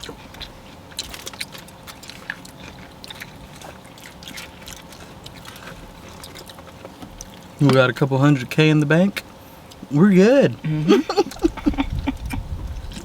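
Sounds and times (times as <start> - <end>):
person chewing: 0.0 - 7.6, 10.7 - 13.0
faint steady hum: 0.0 - 13.0.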